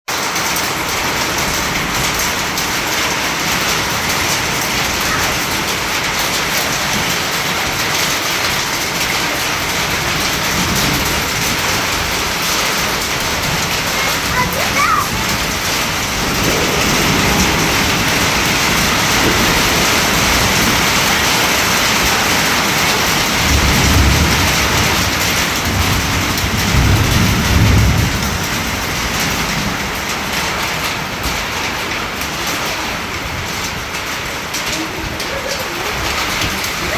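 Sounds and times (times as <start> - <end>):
heavy rain falling: 0.1 - 36.9
low rumbles: 9.8 - 32.0.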